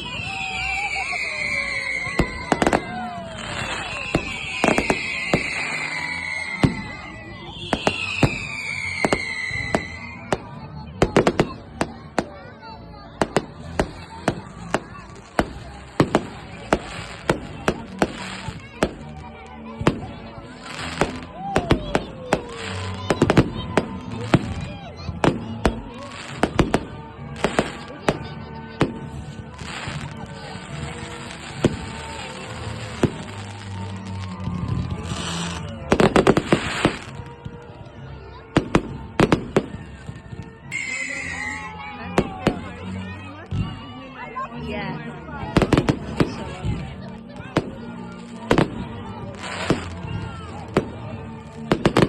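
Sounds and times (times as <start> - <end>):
firework whistles sliding down: 0.0 - 10.2, 40.7 - 41.8
fireworks bangs and cracks: 0.0 - 37.9, 38.5 - 41.5, 42.1 - 42.9, 45.4 - 52.0
background music: 0.0 - 52.0.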